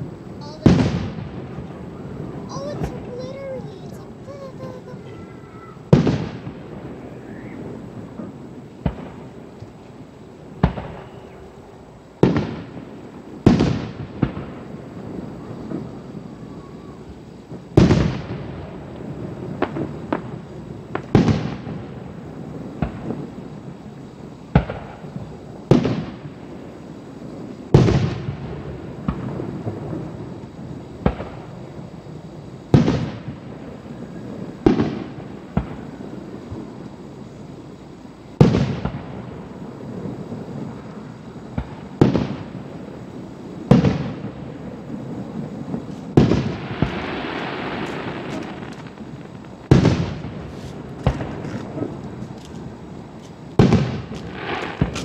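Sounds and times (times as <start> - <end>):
firework shells bursting: 0.0 - 6.6, 43.6 - 55.0.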